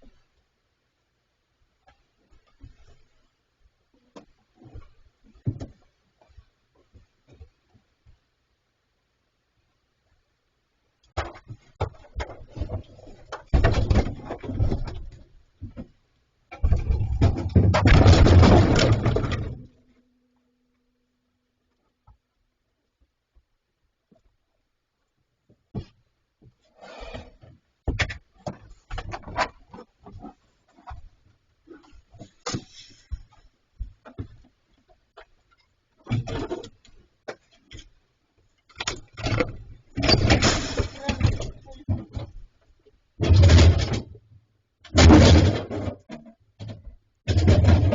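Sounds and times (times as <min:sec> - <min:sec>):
knocks and scraping on metal fridge: 0:11.2 - 0:15.9, 0:38.8 - 0:42.4, 0:43.2 - 0:44.2, 0:44.9 - 0:47.9.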